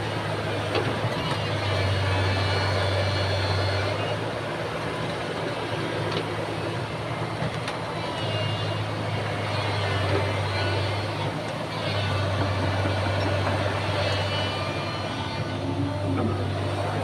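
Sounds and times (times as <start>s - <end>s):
diesel engine deep hum: 0.0s - 17.0s.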